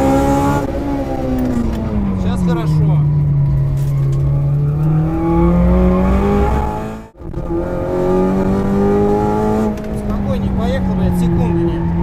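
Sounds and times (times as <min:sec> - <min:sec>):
car engine revving from inside cabin: 0:04.3 - 0:10.2.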